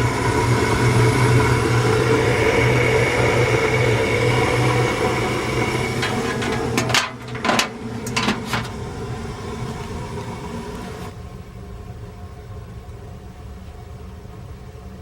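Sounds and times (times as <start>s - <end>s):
gas furnace humming: 0.0s - 11.5s.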